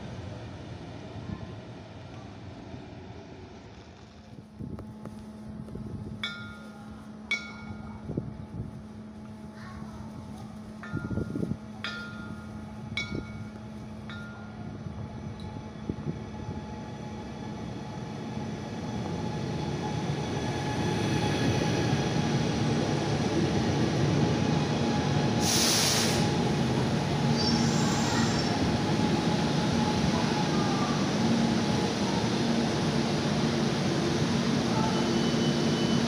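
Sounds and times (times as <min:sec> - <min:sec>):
electric train arriving: 0:00.0 - 0:36.0
hiss burst: 0:25.4 - 0:26.4
faint high wheel squeal: 0:27.4 - 0:28.6, 0:34.7 - 0:36.0.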